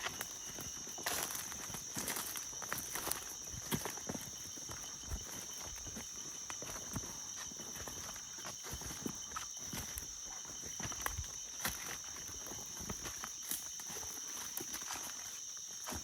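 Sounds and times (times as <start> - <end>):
footsteps crunching through bush: 0.0 - 16.0
high-pitched insect drone: 0.0 - 16.0.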